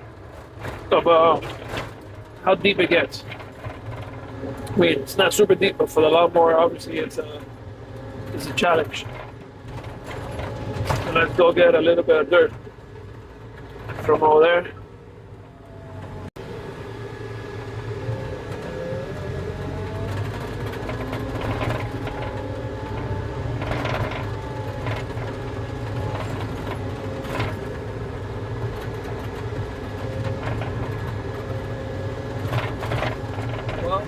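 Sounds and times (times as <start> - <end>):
tracked skid steer engine whine: 0.0 - 34.0
machine and track clanks: 19.5 - 31.7.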